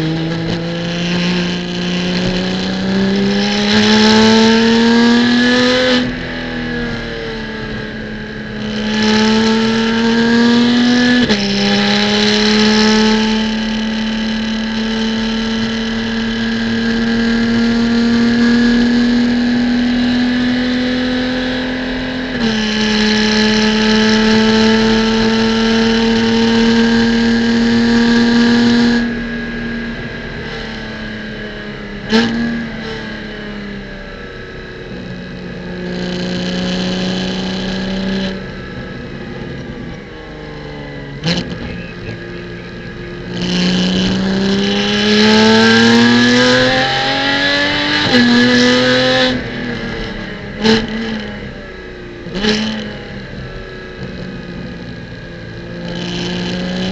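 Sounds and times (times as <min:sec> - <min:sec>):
car engine accelerating: 0:00.0 - 0:56.9
gear change: 0:34.6 - 0:56.9.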